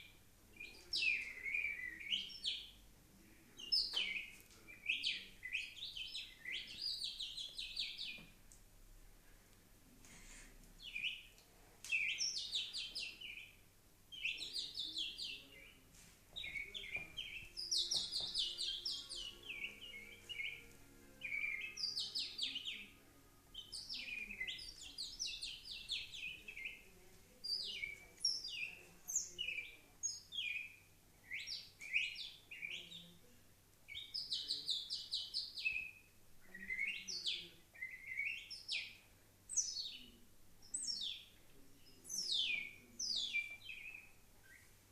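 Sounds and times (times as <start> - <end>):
bird song with whistled trills: 0.0 - 2.8, 3.6 - 8.3, 11.9 - 13.6, 14.2 - 15.7, 16.4 - 23.0, 27.5 - 33.1, 33.9 - 44.7.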